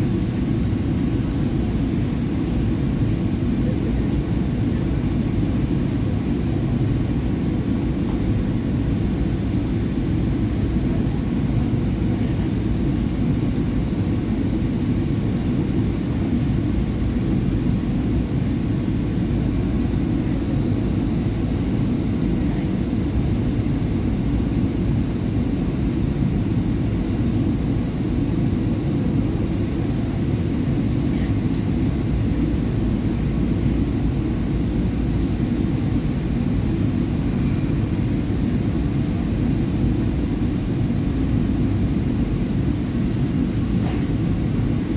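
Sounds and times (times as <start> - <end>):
subway train rumbling: 0.0 - 8.6, 41.4 - 44.9.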